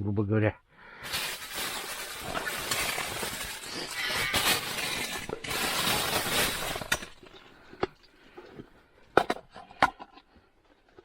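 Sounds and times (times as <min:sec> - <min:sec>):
loud crinkly rustling: 0:01.0 - 0:07.4.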